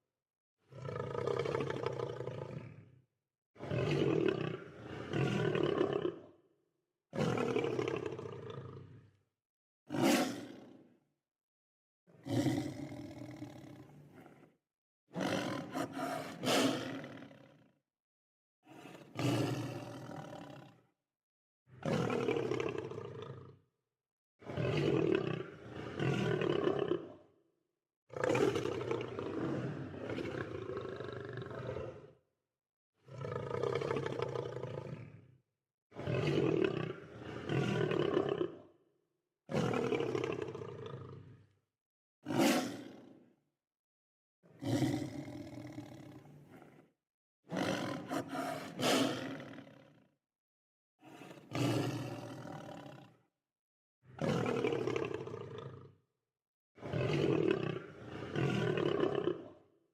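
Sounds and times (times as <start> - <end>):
lion roaring: 0.7 - 2.9, 3.6 - 6.3, 12.2 - 14.4, 15.2 - 17.6, 18.7 - 20.8, 28.2 - 32.1, 33.1 - 35.2, 36.7 - 38.7, 39.6 - 41.5, 42.3 - 42.9, 44.6 - 46.8, 47.5 - 50.1, 51.0 - 53.1, 54.2 - 55.9, 56.8 - 59.6.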